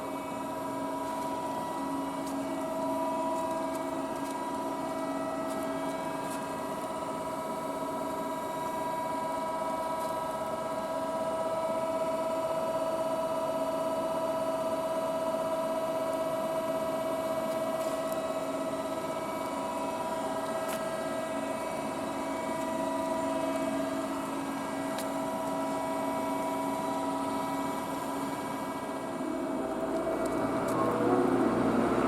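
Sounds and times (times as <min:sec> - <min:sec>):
press brake pump and motor hum: 0:16.2 - 0:32.0.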